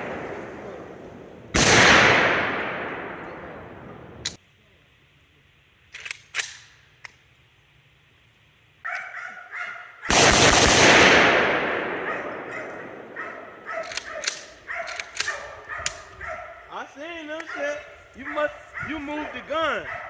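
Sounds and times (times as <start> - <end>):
gunshots: 0.0 - 4.1, 10.1 - 15.5
dog barking: 8.8 - 10.1, 12.0 - 16.7, 17.5 - 20.0
loud rushing blast: 10.2 - 13.2.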